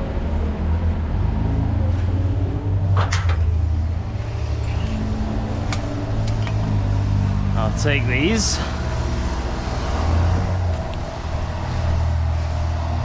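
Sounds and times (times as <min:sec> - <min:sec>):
diesel truck engine idling: 0:03.6 - 0:13.0.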